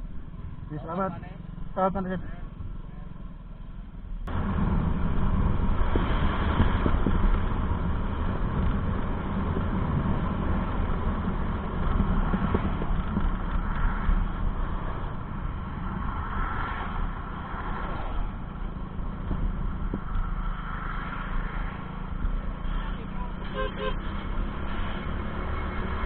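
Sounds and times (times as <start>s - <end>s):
vehicle engine and road noise: 0.0s - 26.0s
wind on microphone: 4.3s - 22.4s.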